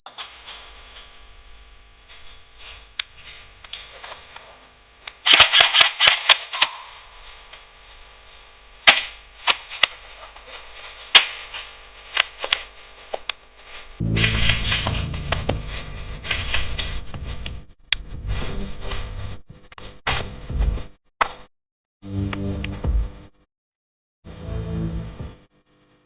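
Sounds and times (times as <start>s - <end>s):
airsoft guns firing: 5.2s - 6.8s.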